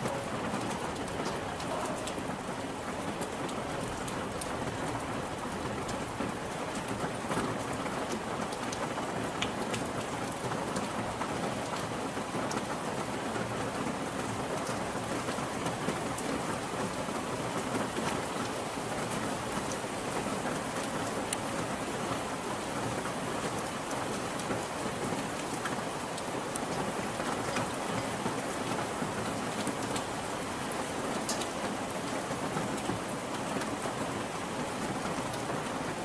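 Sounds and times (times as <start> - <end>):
steady rain hissing: 0.0 - 36.0
sharp raindrop ticks: 9.4 - 10.1, 31.2 - 31.8.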